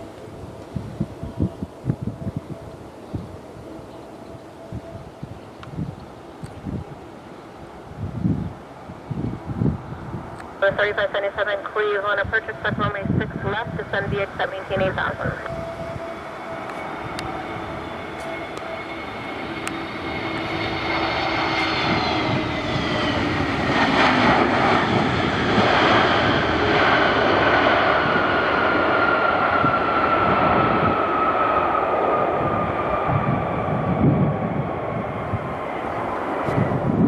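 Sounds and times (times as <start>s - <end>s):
jetliner engine whine passing: 0.0s - 37.0s.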